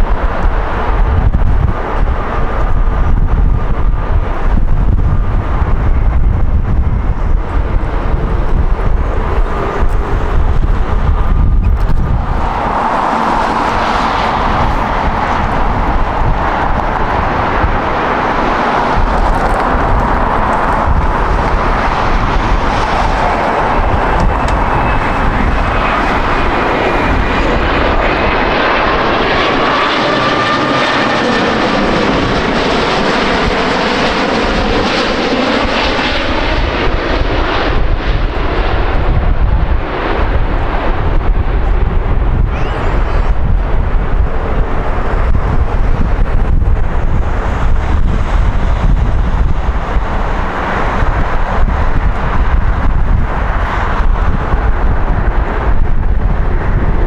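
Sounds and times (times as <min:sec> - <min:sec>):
faint jet engine whine: 0:00.0 - 0:57.0
jet airliner roar: 0:00.0 - 0:57.0.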